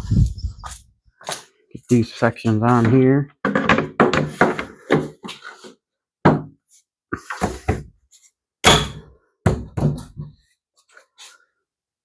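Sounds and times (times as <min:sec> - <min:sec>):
plastic parts knocking and clicking: 0:02.8 - 0:05.4.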